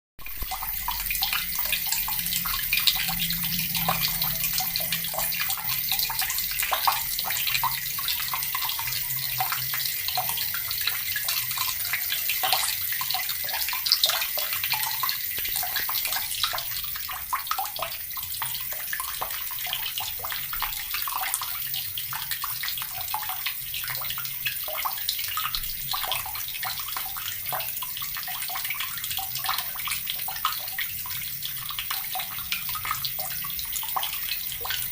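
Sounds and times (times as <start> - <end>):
tap water splashing into basin: 3.9 - 21.5.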